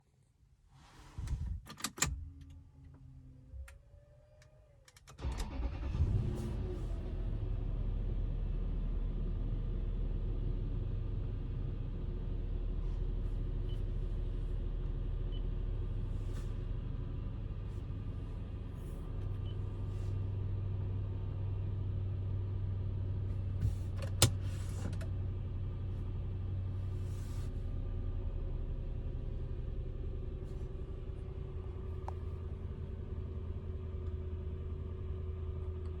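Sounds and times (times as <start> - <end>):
car engine idling: 13.2 - 36.0.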